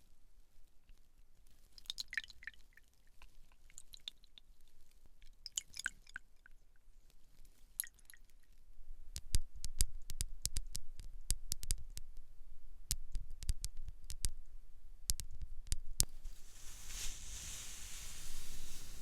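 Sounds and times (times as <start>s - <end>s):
soft brushing hiss: 16.0s - 19.0s.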